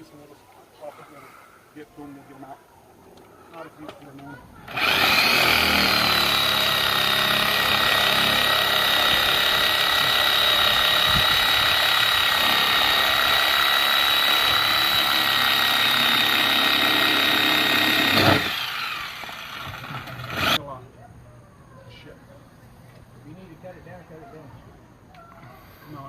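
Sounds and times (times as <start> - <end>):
electric motor whining: 4.7 - 20.6.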